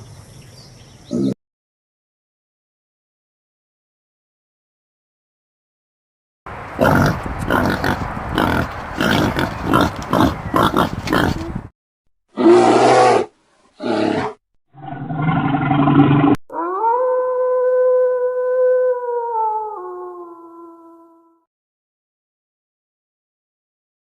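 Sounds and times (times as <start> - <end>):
animal grunting roars: 6.8 - 11.6, 12.4 - 16.4.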